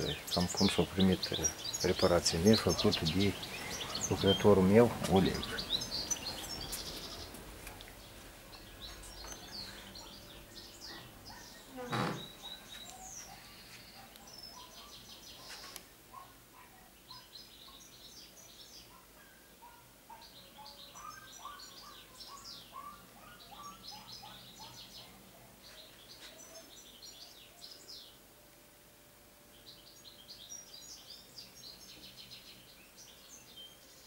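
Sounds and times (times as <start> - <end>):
small birds chirping: 0.0 - 28.6, 29.3 - 34.0.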